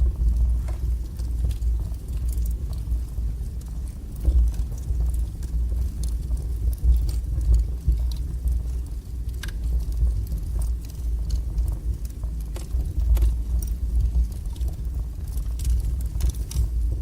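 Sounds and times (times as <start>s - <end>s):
fire crackles and pops: 0.0s - 17.0s
low roar of flames: 0.0s - 17.0s.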